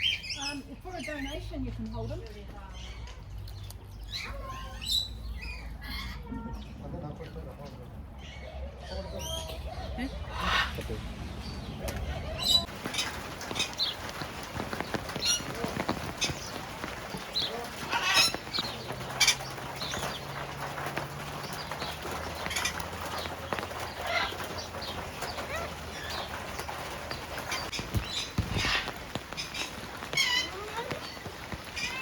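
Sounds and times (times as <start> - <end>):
parrots squawking: 8.2 - 13.9, 15.2 - 32.0.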